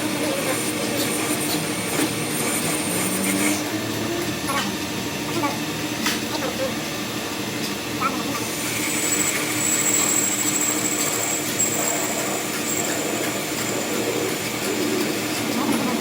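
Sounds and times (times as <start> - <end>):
workshop machine running: 0.0 - 16.0
thin high whine: 8.0 - 16.0.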